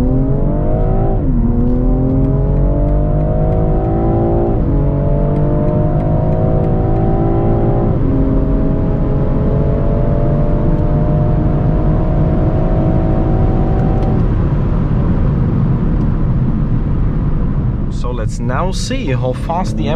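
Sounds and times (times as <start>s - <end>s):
car engine accelerating: 0.0s - 19.9s
low rumble: 12.4s - 19.9s.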